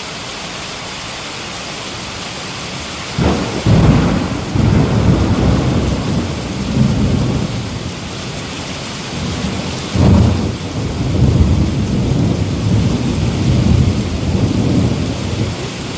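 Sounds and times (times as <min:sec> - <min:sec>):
heavy rain falling: 0:00.0 - 0:15.9
rolling thunder: 0:03.2 - 0:15.9.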